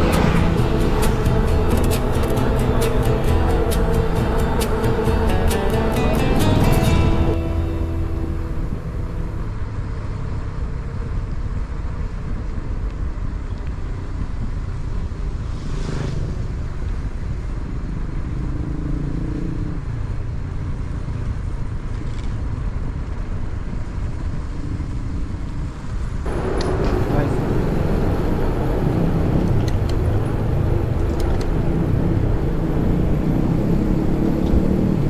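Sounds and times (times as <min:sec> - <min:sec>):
wind rumble on microphone: 0:00.0 - 0:07.4, 0:08.2 - 0:35.0
mountain bike rolling noise: 0:20.4 - 0:35.0.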